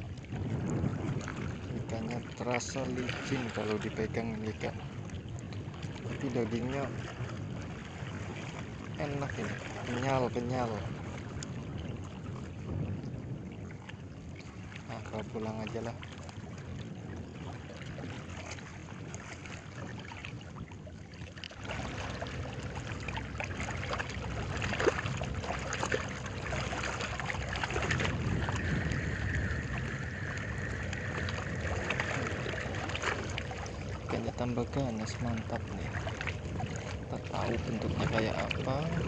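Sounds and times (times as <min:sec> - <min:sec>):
water at the shore: 0:00.0 - 0:39.0
wind: 0:00.0 - 0:39.0
deep rumble: 0:21.5 - 0:39.0.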